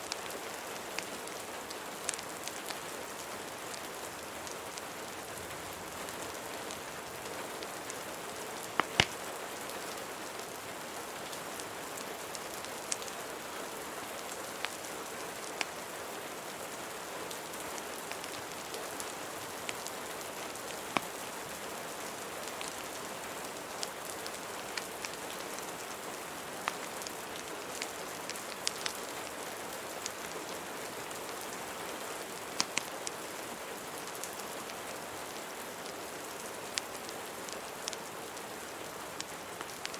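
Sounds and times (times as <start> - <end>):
wood fire crackling: 0.0 - 15.9, 16.9 - 31.6, 32.2 - 39.9
steady rain hiss: 0.0 - 39.9.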